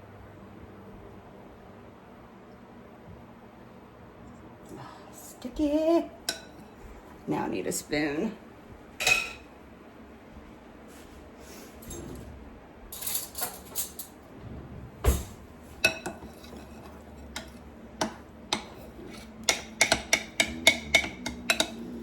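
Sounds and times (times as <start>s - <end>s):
spoon clinking against a dish: 15.8s - 22.0s.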